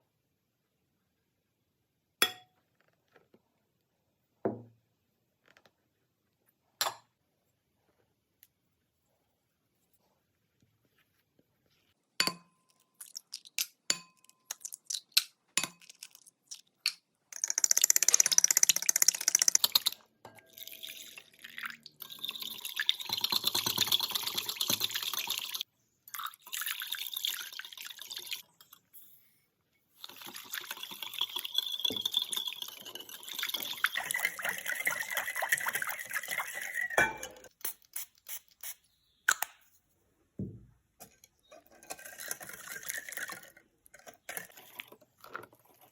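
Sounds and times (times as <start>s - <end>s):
liquid pouring and splashing: 12.9s - 13.8s, 17.4s - 28.5s, 30.0s - 37.0s, 41.8s - 45.9s.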